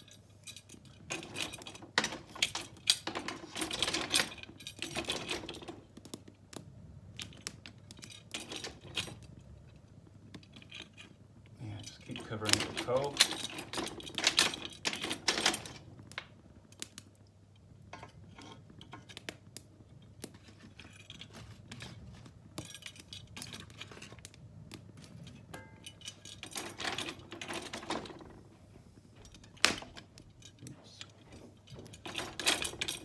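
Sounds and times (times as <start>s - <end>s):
coal lumps clattering: 11.6s - 15.8s.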